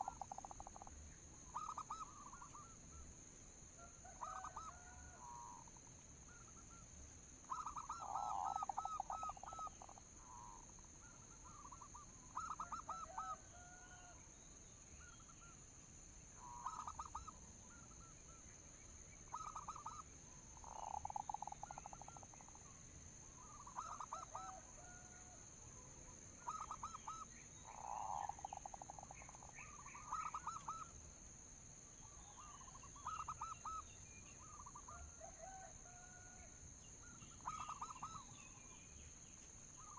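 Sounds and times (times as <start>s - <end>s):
dove cooing: 1.6s - 2.8s, 4.0s - 5.4s, 7.5s - 10.5s, 11.5s - 13.9s, 19.3s - 20.0s, 23.4s - 25.4s, 26.4s - 30.9s, 32.3s - 33.8s, 37.4s - 38.3s.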